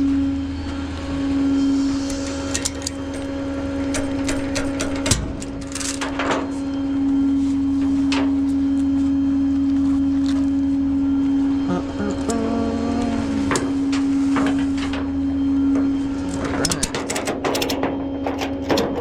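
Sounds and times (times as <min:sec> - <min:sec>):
tow truck engine rumble: 0:11.5 - 0:17.1
clicks and rattles: 0:16.3 - 0:19.0.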